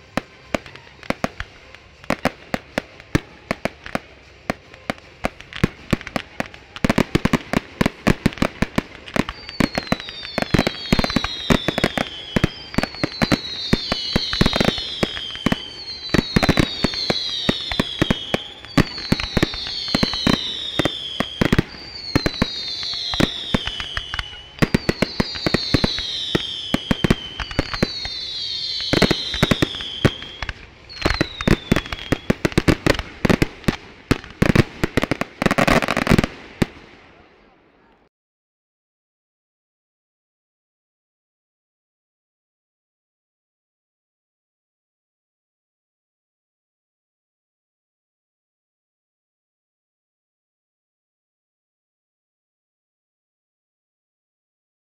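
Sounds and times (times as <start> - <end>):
falling firework whistle: 0.0 - 36.8
fireworks bangs and crackling: 0.0 - 37.6.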